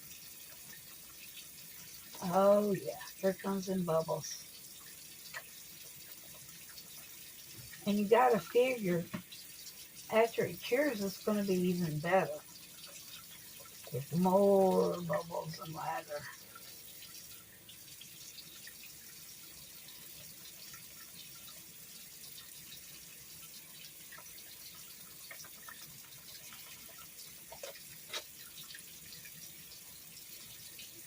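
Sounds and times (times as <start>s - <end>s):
tap water running into sink: 0.0s - 31.0s
faint wet clicks: 4.3s - 7.9s, 24.0s - 28.8s.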